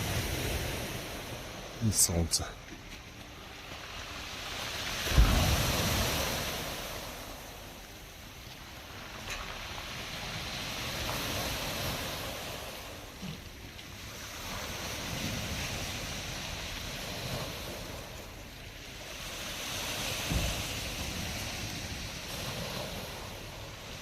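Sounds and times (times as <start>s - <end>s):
wind gusts on microphone: 0.0s - 1.9s, 3.8s - 7.7s
waves breaking and washing back: 0.0s - 24.0s.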